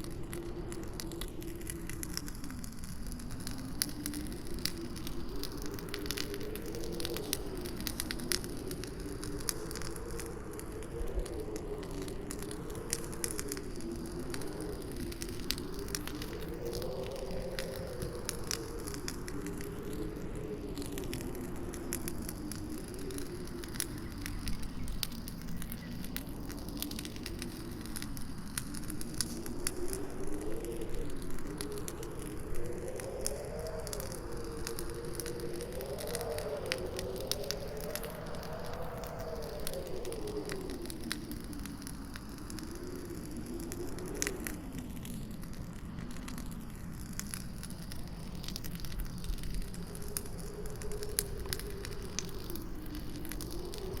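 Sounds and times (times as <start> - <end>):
campfire crackling and popping: 0.0 - 54.0
howling wind: 0.0 - 54.0.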